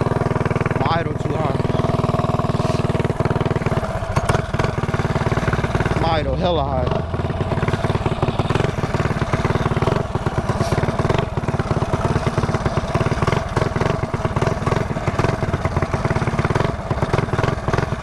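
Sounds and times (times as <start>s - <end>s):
mini bike engine running: 0.0s - 18.0s
man talking: 0.7s - 2.0s, 6.0s - 7.0s.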